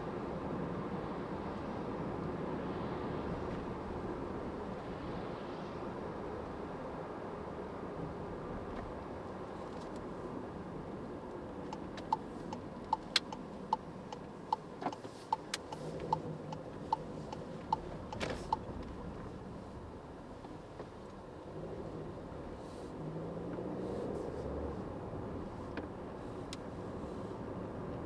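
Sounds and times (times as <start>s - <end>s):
road and tyre noise: 0.0s - 28.0s
turn signal ticking: 11.2s - 19.6s.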